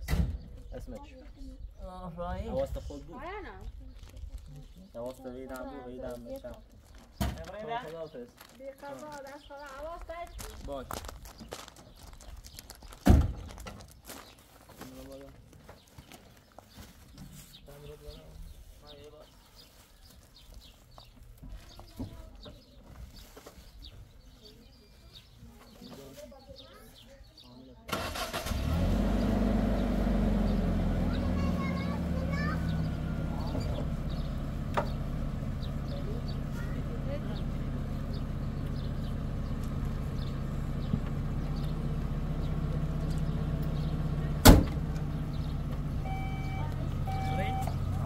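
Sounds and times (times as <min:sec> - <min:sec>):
small birds chirping: 0:00.1 - 0:48.0
low engine-like hum: 0:28.2 - 0:48.0
low outdoor rumble: 0:28.9 - 0:48.0.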